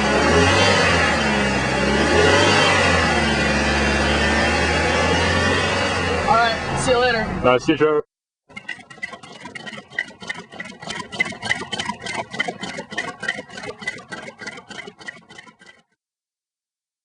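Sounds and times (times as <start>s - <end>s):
stirling engine clicking and rattling: 8.5s - 16.0s.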